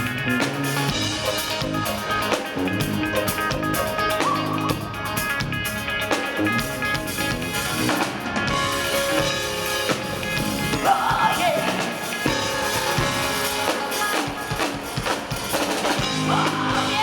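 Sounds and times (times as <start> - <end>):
live rock band playing: 0.0 - 17.0
person singing: 10.6 - 15.0, 16.0 - 17.0.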